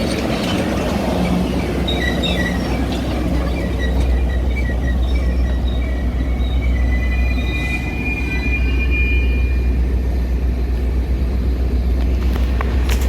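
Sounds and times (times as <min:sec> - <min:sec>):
high wheel squeals: 0:00.0 - 0:09.9
train rumbling: 0:00.0 - 0:13.0.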